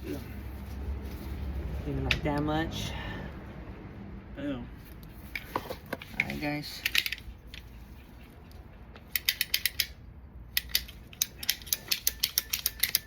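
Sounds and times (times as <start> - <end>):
ratcheting pipe cutter clicking: 9.0 - 13.0.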